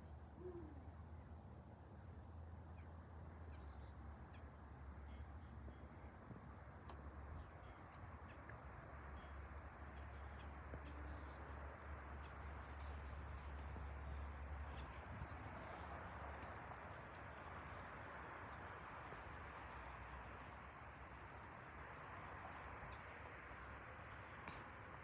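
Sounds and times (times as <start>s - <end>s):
birds chirping: 9.1s - 24.7s.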